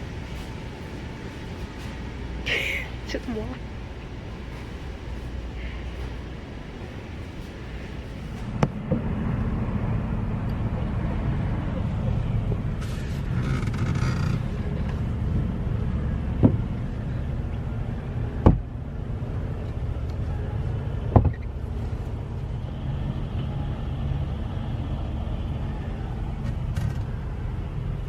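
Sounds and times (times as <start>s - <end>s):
truck engine rumbling: 0.0s - 8.9s.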